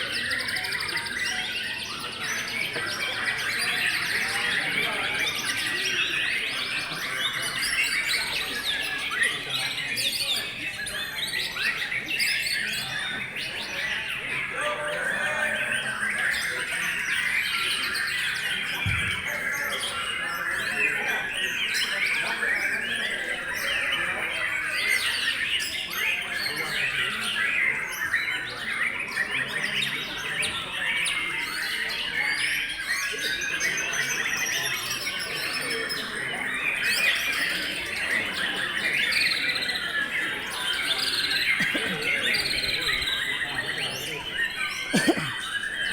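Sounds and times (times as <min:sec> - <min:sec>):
many birds singing: 0:00.0 - 0:45.9.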